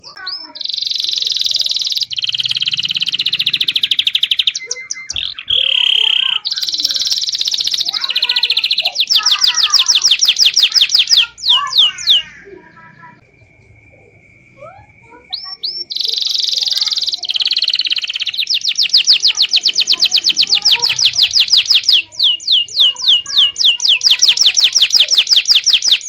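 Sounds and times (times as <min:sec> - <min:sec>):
canary singing trills: 0:00.0 - 0:26.0.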